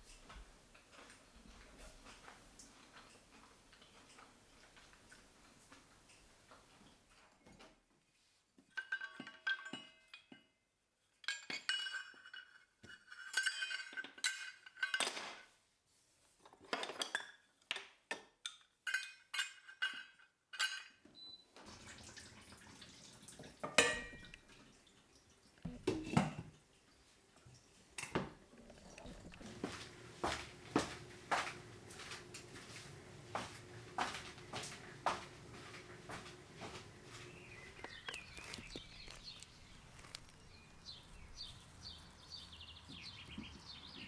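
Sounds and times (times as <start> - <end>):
crockery and cutlery clinking: 8.8 - 10.6, 11.2 - 15.3, 18.5 - 21.0, 23.7 - 24.4, 29.4 - 37.7.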